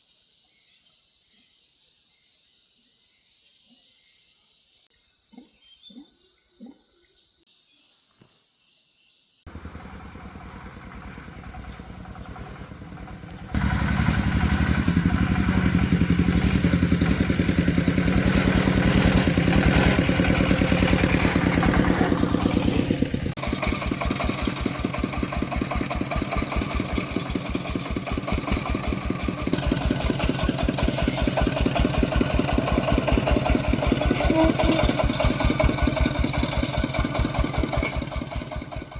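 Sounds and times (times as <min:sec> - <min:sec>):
tractor engine chugging: 0:09.5 - 0:38.9.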